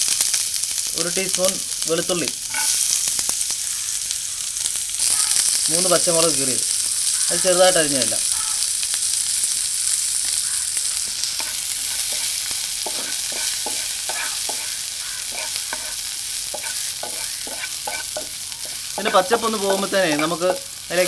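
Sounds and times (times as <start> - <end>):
food sizzling in hot oil: 0.0 - 21.0
spoon scraping and tapping pan: 11.4 - 20.7.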